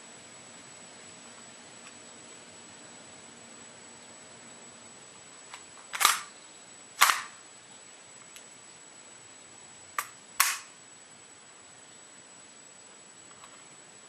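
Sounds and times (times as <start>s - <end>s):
airsoft pistol sharp cracks: 5.9s - 6.3s, 7.0s - 7.4s, 10.0s - 10.8s.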